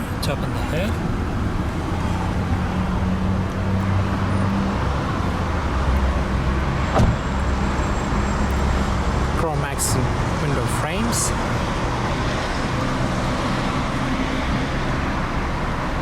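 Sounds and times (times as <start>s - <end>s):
sharp knock: 6.9s - 7.2s.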